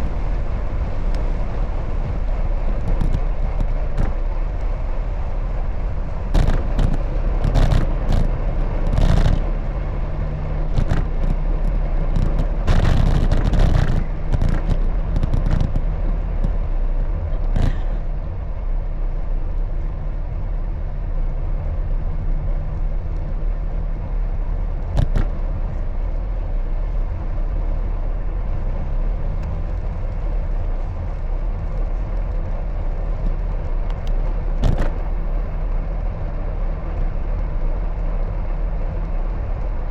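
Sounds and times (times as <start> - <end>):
wind and road noise: 0.0 - 39.9
bicycle rattles and knocks: 1.2 - 4.8, 6.3 - 18.0, 24.8 - 25.7, 29.2 - 35.4.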